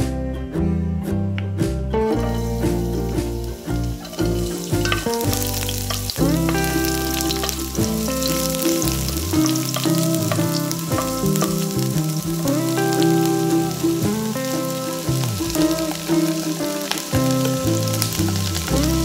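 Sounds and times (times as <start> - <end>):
background music: 0.0 - 19.0
garlic sizzling in oil: 2.2 - 19.0
wooden spoon stirring: 4.0 - 11.8.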